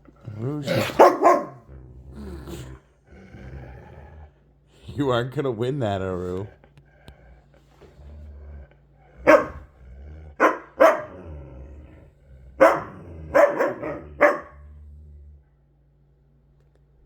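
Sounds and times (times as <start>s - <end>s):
dogs barking sharply: 0.7s - 1.7s, 9.3s - 9.6s, 10.4s - 11.2s, 12.6s - 14.6s.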